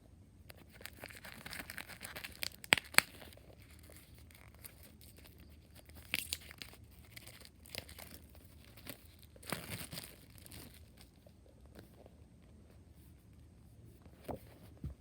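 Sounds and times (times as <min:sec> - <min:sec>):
wrapping crinkling and rustling: 0:00.5 - 0:12.1.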